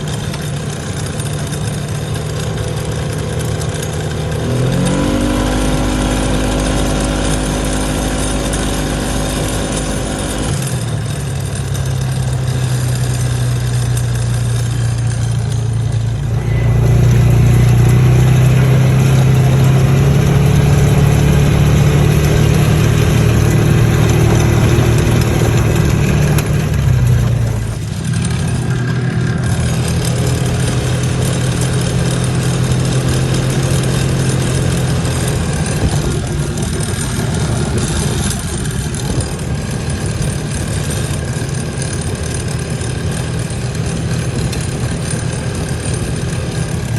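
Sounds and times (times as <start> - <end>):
off-road vehicle engine running: 0.0 - 46.9
rattle: 0.0 - 46.9.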